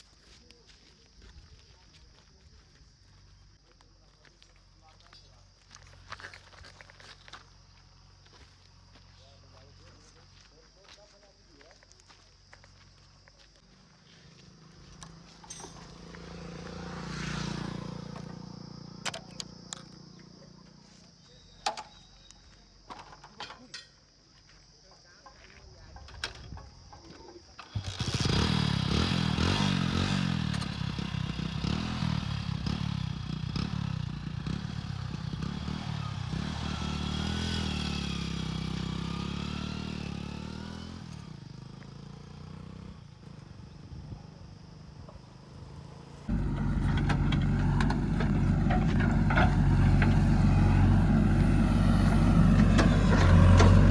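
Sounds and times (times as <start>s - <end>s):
scattered clicks: 19.0s - 20.0s
engine running loudly: 46.3s - 53.9s.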